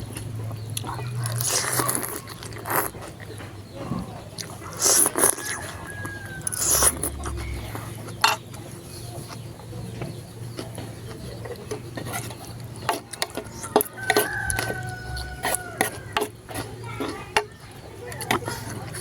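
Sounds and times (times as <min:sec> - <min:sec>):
rooster crowing: 0:05.2 - 0:06.9, 0:13.5 - 0:16.2.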